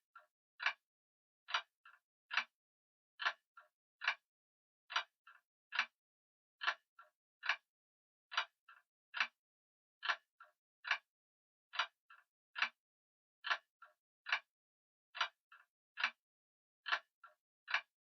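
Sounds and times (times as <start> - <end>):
faint clock click: 0.0 - 0.8, 1.5 - 2.5, 3.2 - 4.2, 4.9 - 6.0, 6.6 - 7.7, 8.3 - 9.4, 10.0 - 11.1, 11.7 - 12.8, 13.4 - 14.5, 15.2 - 16.2, 16.8 - 18.0.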